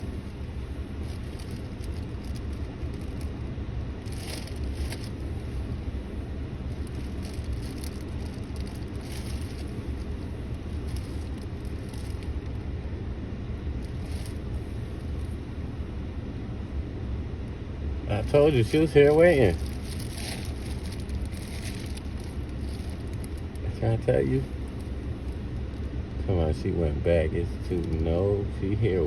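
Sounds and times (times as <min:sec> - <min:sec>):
faint rustles: 0:00.0 - 0:12.8, 0:13.7 - 0:15.9, 0:18.1 - 0:26.2
car engine rumble inside cabin: 0:00.0 - 0:29.0.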